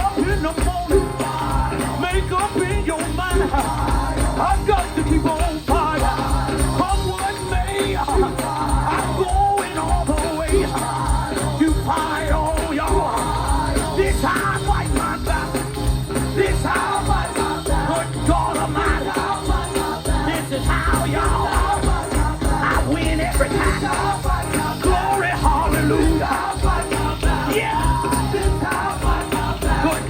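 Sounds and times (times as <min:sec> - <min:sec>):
band with bass and beat: 0:00.0 - 0:30.0
gospel voices singing: 0:00.0 - 0:30.0.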